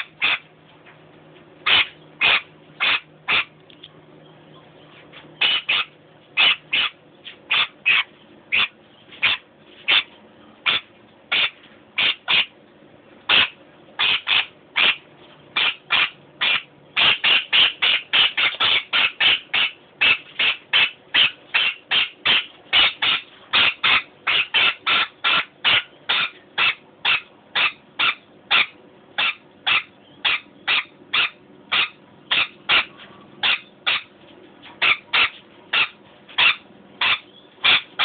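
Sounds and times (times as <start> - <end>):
bird chirping: 4.2 - 10.1, 15.6 - 34.1, 34.8 - 38.0.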